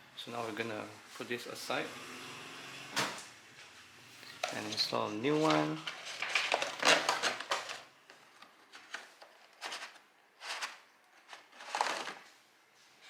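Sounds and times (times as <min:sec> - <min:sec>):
rustling and scraping handling: 0:03.6 - 0:13.0.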